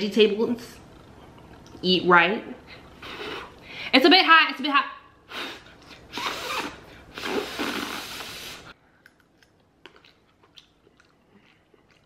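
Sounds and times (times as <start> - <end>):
chewing: 9.0 - 12.0.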